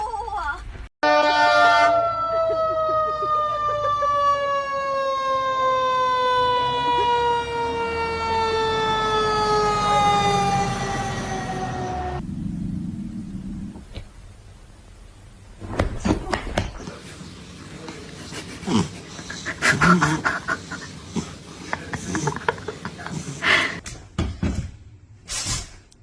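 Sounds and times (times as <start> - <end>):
siren winding down: 1.0 - 13.7.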